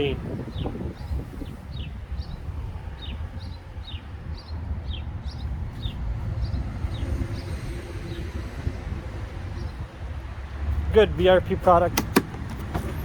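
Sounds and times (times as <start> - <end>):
bird chirping: 0.5 - 8.4.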